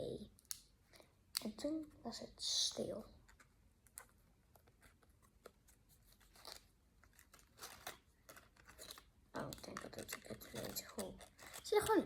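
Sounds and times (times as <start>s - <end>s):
cardboard pieces clicking and rustling: 6.2s - 12.0s.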